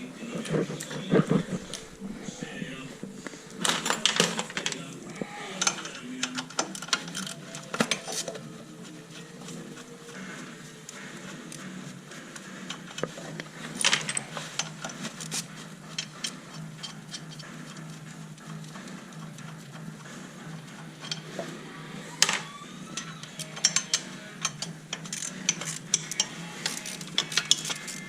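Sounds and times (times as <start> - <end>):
steady low hum: 0.0 - 23.0
metal tools clinking: 0.4 - 10.2, 12.7 - 17.8, 22.2 - 28.0.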